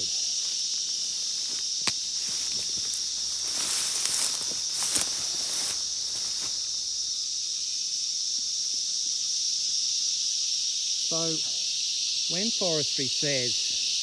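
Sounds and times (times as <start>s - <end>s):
footsteps through undergrowth: 0.0s - 7.2s
cicadas shrilling: 0.0s - 14.0s.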